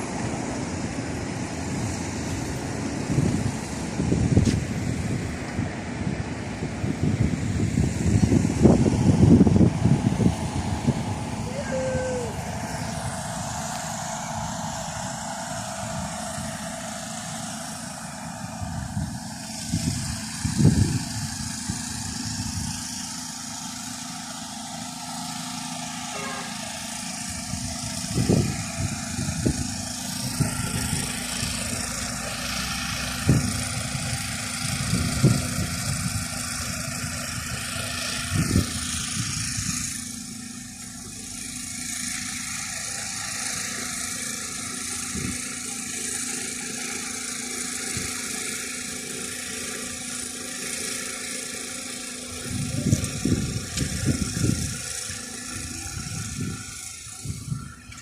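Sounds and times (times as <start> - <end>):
steady rushing noise: 0.0 - 46.3.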